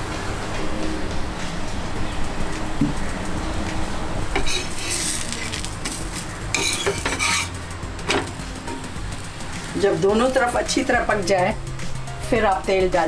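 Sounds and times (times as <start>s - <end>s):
metal spatula scraping griddle: 4.3s - 10.7s.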